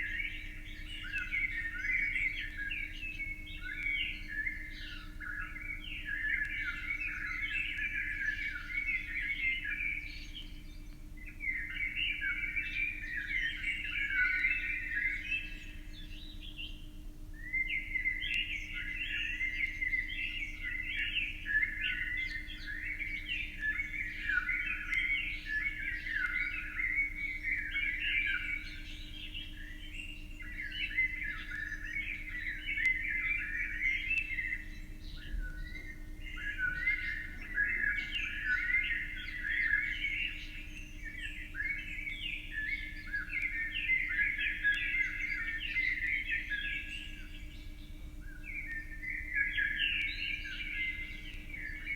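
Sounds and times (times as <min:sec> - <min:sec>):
faint steady hum: 0:00.0 - 0:51.9
birds chirping: 0:17.5 - 0:51.9.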